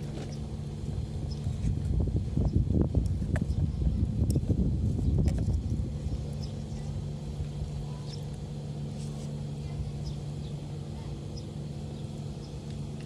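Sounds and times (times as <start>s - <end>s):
steady engine drone: 0.0s - 13.0s
birds chirping: 6.0s - 7.0s, 9.6s - 12.8s.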